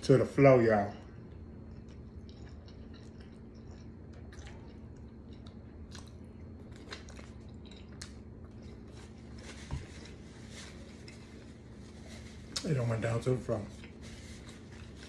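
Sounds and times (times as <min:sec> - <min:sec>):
steady low hum: 0:00.0 - 0:15.0
man chewing and sucking fingers: 0:01.3 - 0:09.4.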